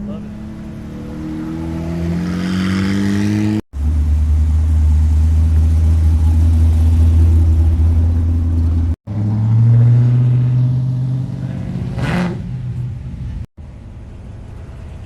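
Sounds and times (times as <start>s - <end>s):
vehicle engine revving: 0.0s - 12.8s
deep engine rumble: 3.8s - 15.0s.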